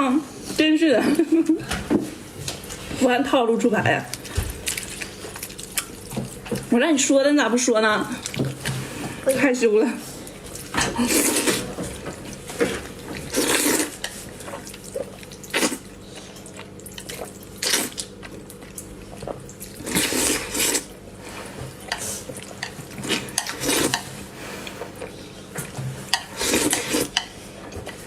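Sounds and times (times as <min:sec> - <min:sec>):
slurping and chewing: 0:04.1 - 0:06.6, 0:10.2 - 0:27.4.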